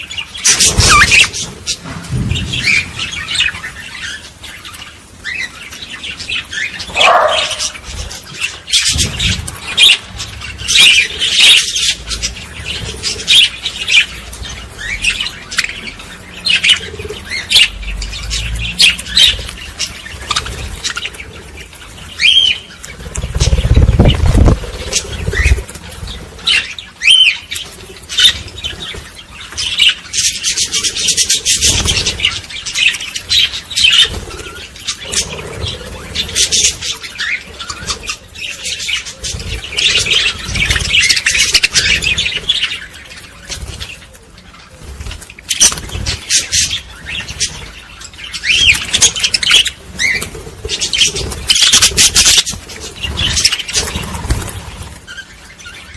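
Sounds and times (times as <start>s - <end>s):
small birds chirping: 0.0s - 55.9s
low rumble: 1.6s - 4.4s.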